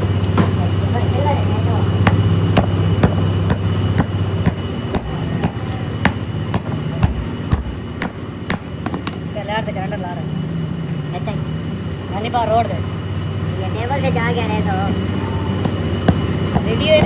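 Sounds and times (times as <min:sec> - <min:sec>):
low machine hum: 0:00.0 - 0:17.0
hammering: 0:02.0 - 0:09.2, 0:15.6 - 0:17.0.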